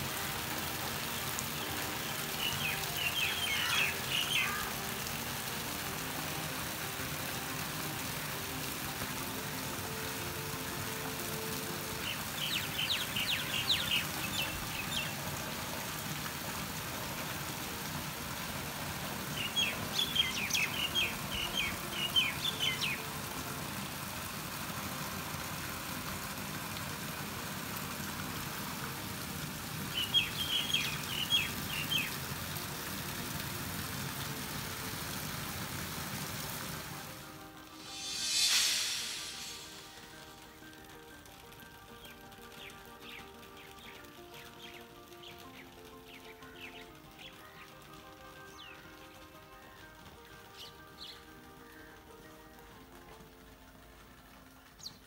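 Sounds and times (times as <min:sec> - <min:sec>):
steady rain falling: 0:00.0 - 0:55.0
songbird chirping: 0:01.1 - 0:04.8, 0:12.0 - 0:15.2, 0:19.3 - 0:23.1, 0:30.0 - 0:32.2, 0:37.7 - 0:40.9, 0:41.9 - 0:49.0, 0:50.5 - 0:51.3.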